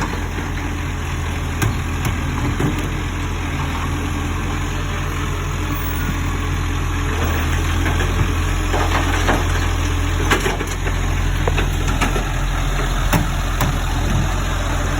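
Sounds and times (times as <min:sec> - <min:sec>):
garbage truck engine idling: 0:00.0 - 0:14.9
sharp knocks and clanks: 0:01.5 - 0:03.2, 0:13.1 - 0:14.4.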